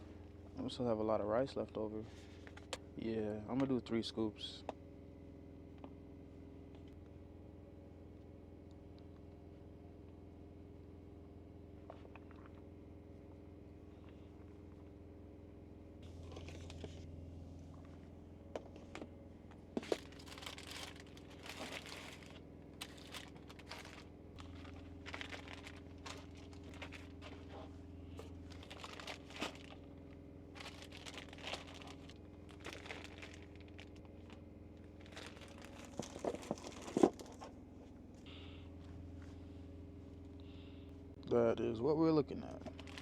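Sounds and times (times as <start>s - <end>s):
faint low hum: 0.0s - 43.0s
plastic containers crinkling: 19.8s - 27.6s, 28.4s - 37.5s, 42.6s - 43.0s.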